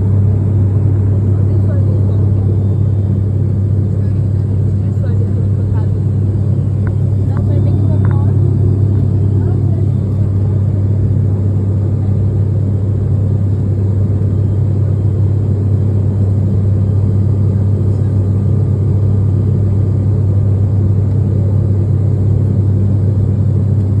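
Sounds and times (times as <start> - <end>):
vehicle engine droning: 4.8 - 11.4.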